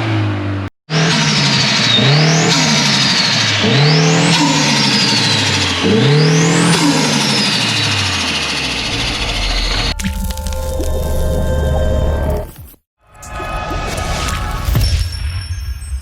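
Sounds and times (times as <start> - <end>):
car engine revving: 0.0 - 10.0
high turbo whine: 0.9 - 12.5.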